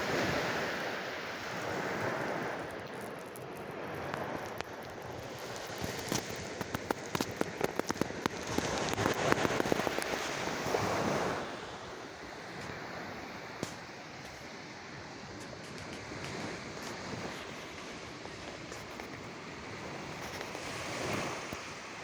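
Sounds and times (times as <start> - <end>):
sea waves washing in: 0.0 - 22.0
crackle of sharp clicks: 2.8 - 10.5.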